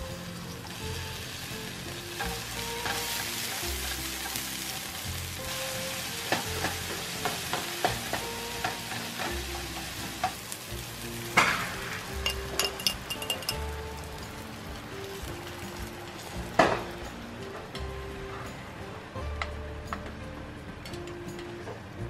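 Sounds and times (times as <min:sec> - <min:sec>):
egg sizzling in hot pan: 0:00.0 - 0:16.8
vegetables sizzling in oil: 0:00.0 - 0:17.4.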